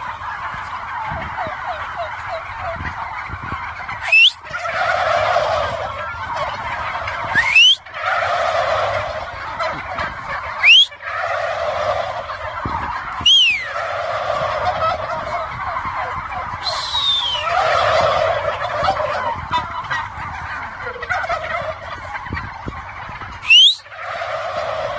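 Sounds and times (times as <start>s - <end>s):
turkeys gobbling: 0.0s - 24.9s
rising whistle-like glides: 4.0s - 4.4s, 7.3s - 7.8s, 10.6s - 10.9s, 13.2s - 13.8s, 16.6s - 17.6s, 23.4s - 23.8s.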